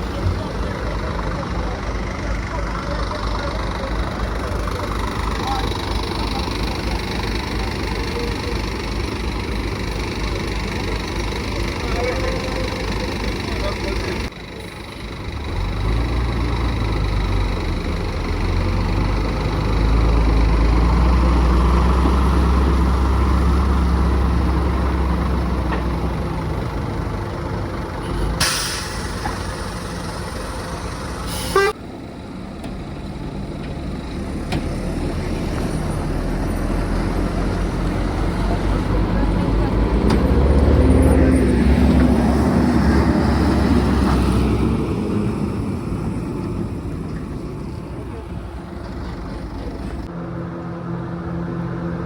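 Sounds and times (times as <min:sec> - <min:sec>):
truck diesel engine rumbling: 0:00.0 - 0:52.0
air brake hiss: 0:28.0 - 0:29.8, 0:31.2 - 0:31.8.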